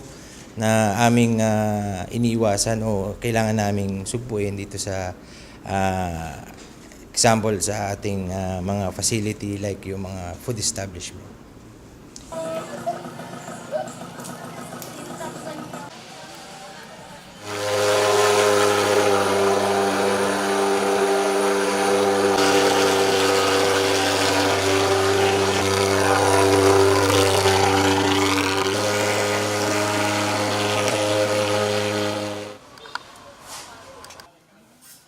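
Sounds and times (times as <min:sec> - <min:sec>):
fogging machine buzzing drone: 0:17.4 - 0:32.7.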